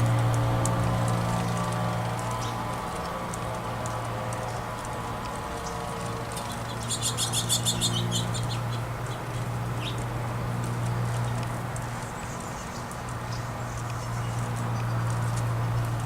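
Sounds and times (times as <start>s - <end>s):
songbird chirping: 6.3s - 10.0s.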